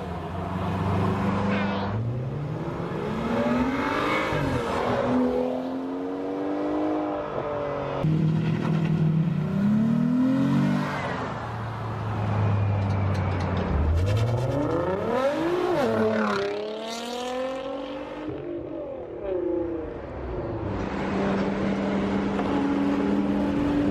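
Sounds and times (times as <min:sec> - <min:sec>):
car engines revving: 0:00.0 - 0:23.9.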